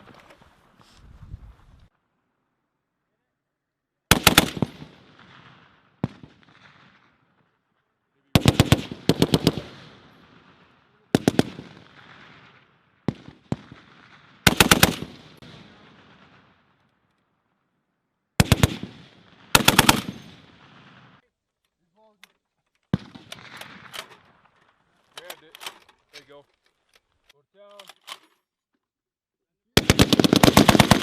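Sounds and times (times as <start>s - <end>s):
gunfire echo: 18.4s - 21.2s, 23.0s - 24.4s
heavy machine gun bursts: 19.6s - 20.2s.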